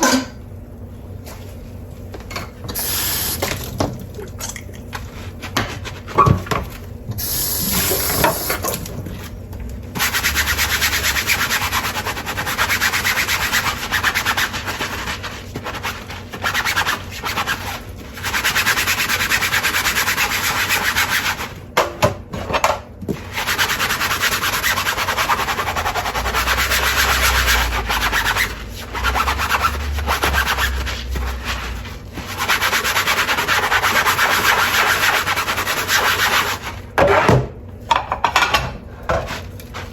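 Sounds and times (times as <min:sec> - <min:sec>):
dishes clinking: 0:00.0 - 0:00.4
sponge scrubbing dishes: 0:03.2 - 0:06.6, 0:09.9 - 0:21.6, 0:23.2 - 0:39.9.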